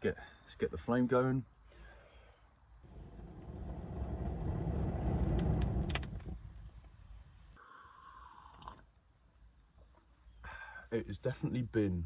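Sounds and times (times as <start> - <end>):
air blown onto embers: 2.8 - 7.4
fire crackling: 2.8 - 7.6.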